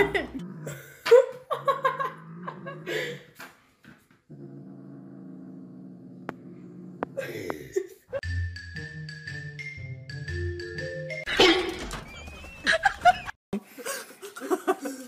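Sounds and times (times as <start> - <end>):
dog growling: 2.0 - 3.2, 4.3 - 7.3
music: 8.2 - 12.7.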